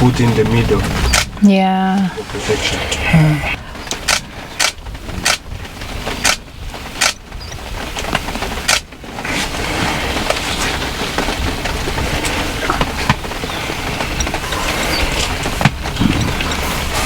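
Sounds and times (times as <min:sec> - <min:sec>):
rushing noise: 0:00.0 - 0:07.0
vehicle engine running low: 0:00.0 - 0:17.0
sharp clicks and knocks: 0:00.4 - 0:01.5, 0:03.8 - 0:09.0.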